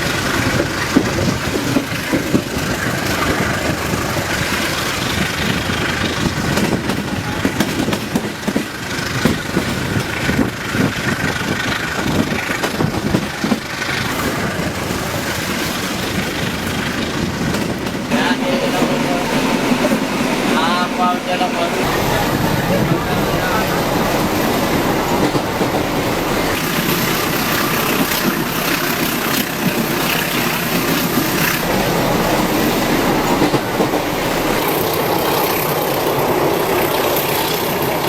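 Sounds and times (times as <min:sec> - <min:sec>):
rattling and knocks of wheels: 0:00.0 - 0:18.1
train rolling noise: 0:00.0 - 0:38.0.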